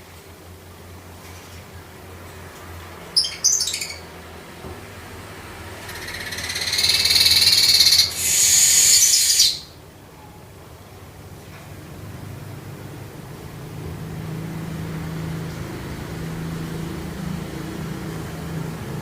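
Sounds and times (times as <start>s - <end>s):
buzzy rattling bird song: 2.6s - 4.5s, 5.6s - 9.8s
bird chips: 3.2s - 4.1s
high hissing buzz: 5.0s - 9.8s.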